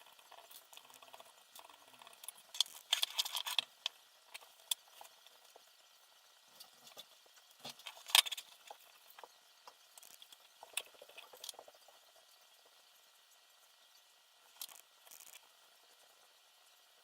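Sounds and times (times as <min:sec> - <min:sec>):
parts clicking and rattling: 0:00.3 - 0:05.4, 0:06.6 - 0:12.0.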